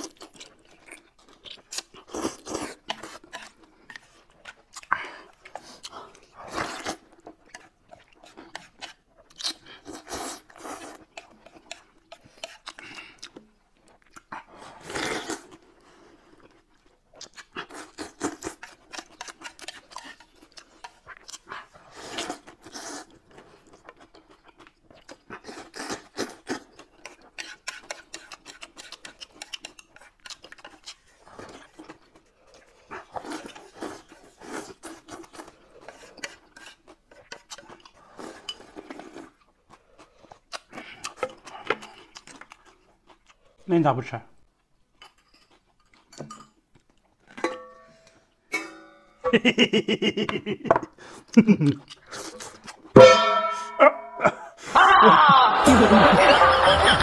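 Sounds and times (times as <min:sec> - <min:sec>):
wet smacking chewing: 0:00.0 - 0:38.2, 0:38.8 - 0:43.6, 0:51.1 - 0:53.0.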